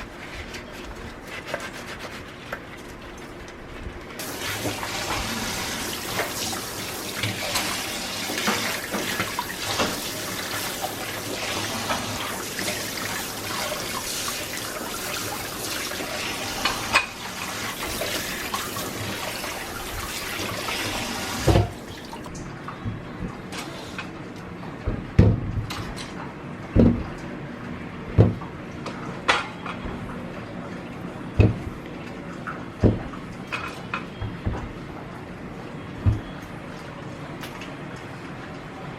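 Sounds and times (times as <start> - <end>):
tap water running into sink: 4.2 - 22.5.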